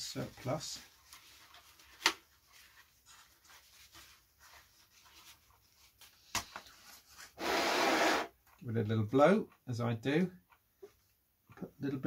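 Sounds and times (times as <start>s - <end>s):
faint rubbing strokes: 2.4s - 6.0s.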